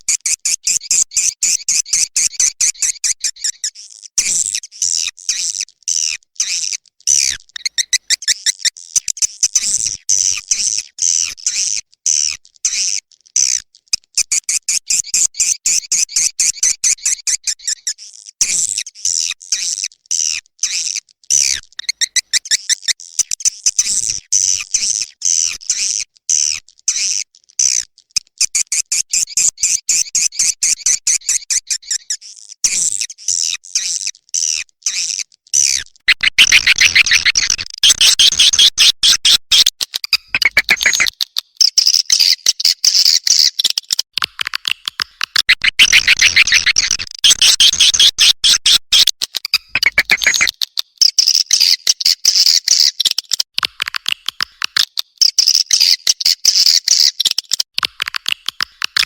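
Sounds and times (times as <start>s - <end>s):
swiftlet buzzy chirps and clicks: 34.9s - 42.4s, 44.3s - 51.8s.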